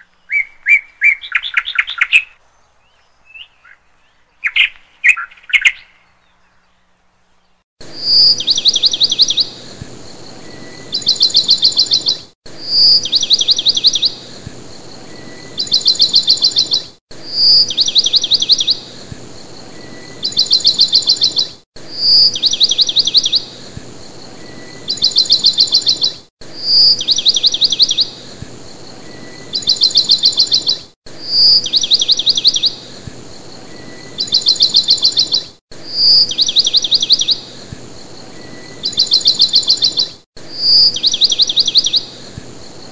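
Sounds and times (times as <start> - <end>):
bird call with trill: 15.3 - 18.8, 19.9 - 23.4, 24.5 - 28.1, 29.2 - 32.8, 33.7 - 37.4, 38.4 - 42.1.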